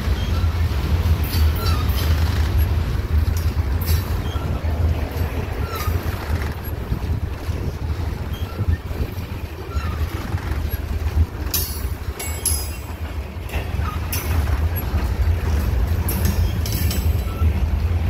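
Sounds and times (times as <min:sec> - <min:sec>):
freight train wheels rumbling on rail: 0:00.0 - 0:18.0
faint squeaks: 0:00.1 - 0:00.7, 0:01.3 - 0:02.8, 0:03.8 - 0:11.1, 0:16.3 - 0:17.8.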